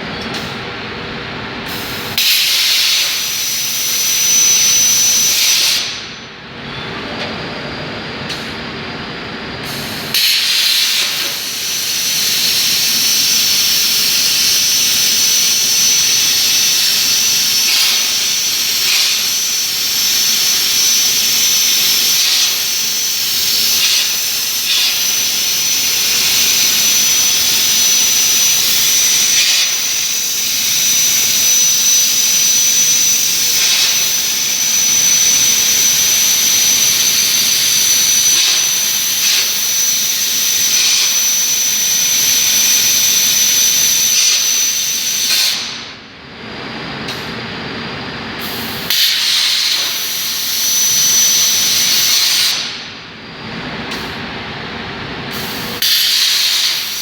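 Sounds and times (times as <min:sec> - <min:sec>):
plasma cutter hissing: 0:09.7 - 0:12.4, 0:55.4 - 0:57.0.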